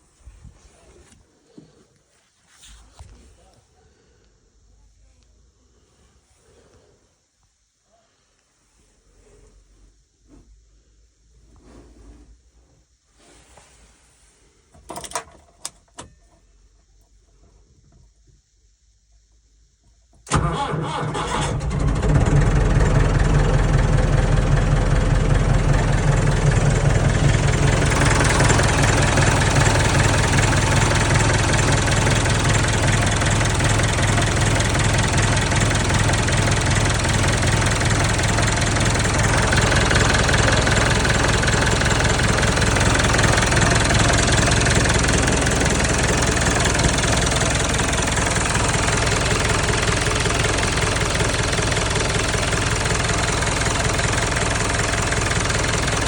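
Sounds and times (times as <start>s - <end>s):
tractor diesel engine idling: 20.2s - 56.0s.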